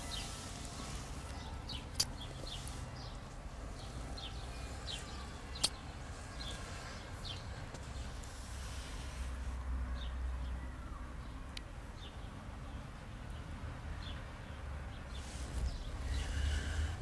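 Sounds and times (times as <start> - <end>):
birds chirping: 0.0 - 9.2, 14.0 - 17.0
low outdoor rumble: 15.1 - 17.0.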